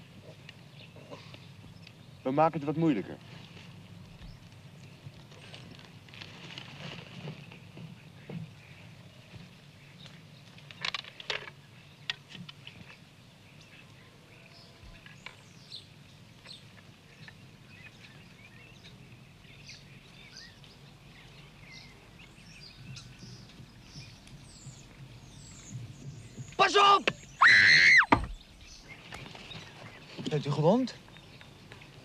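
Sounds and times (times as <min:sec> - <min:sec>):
birds chirping: 0:00.0 - 0:06.0, 0:07.0 - 0:32.0.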